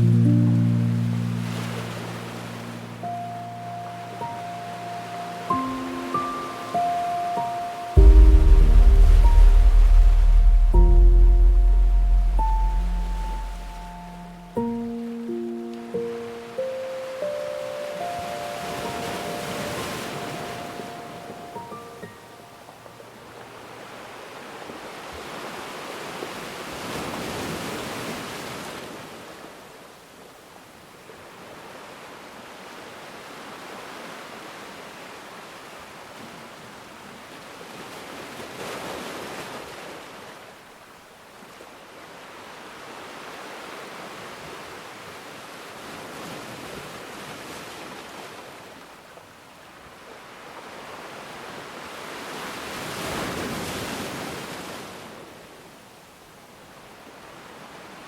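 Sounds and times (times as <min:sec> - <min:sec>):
ocean waves surging: 0:00.0 - 0:23.0.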